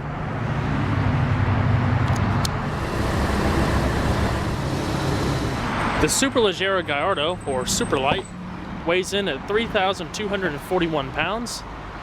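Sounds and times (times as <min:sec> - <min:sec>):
car engine running: 0:02.5 - 0:06.4.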